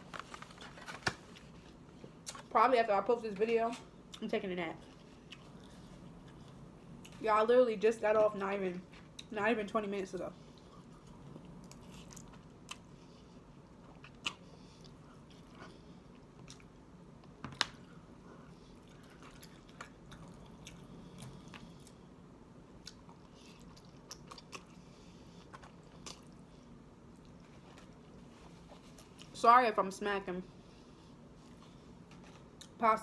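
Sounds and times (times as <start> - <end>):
chewing and mouth smacking: 10.5 - 16.8, 18.6 - 22.0, 22.8 - 28.1.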